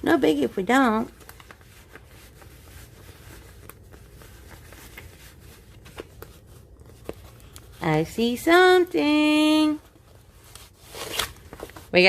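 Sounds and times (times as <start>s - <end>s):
low steady hum: 0.0s - 12.0s
packaging rustling: 0.4s - 7.9s, 9.9s - 12.0s.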